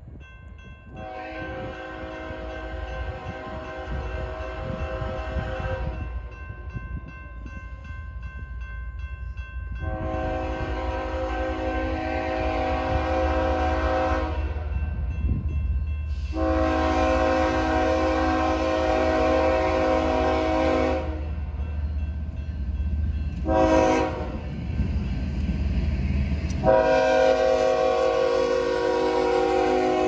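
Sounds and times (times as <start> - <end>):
train rumble: 0.0 - 30.0
locomotive air horn: 1.0 - 6.0, 9.8 - 14.7, 16.2 - 21.4, 23.4 - 24.4, 26.6 - 30.0.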